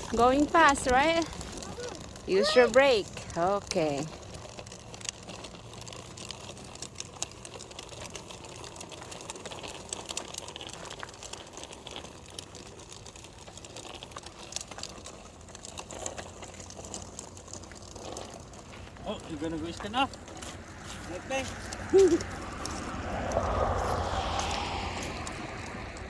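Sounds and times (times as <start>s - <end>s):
bicycle clicking and rattling: 0.0s - 26.0s.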